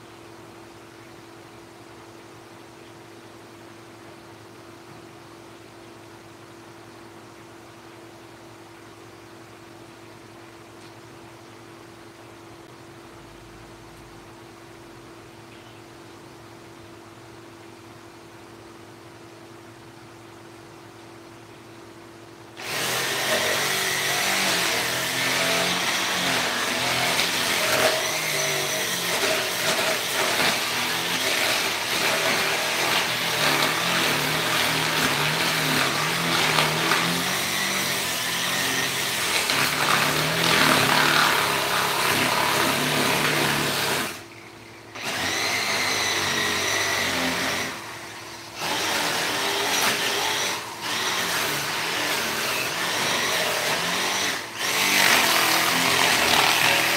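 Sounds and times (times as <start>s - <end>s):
power tool carving wood: 22.6s - 44.3s, 44.9s - 56.9s.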